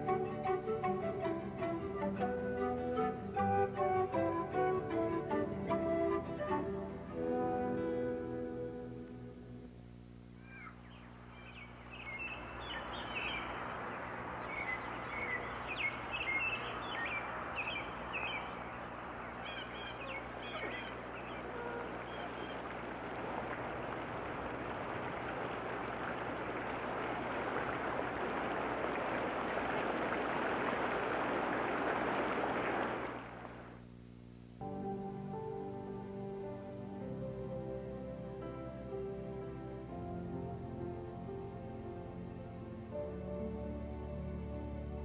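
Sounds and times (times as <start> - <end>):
birds chirping: 10.4 - 33.0
steady rushing noise: 11.8 - 33.8.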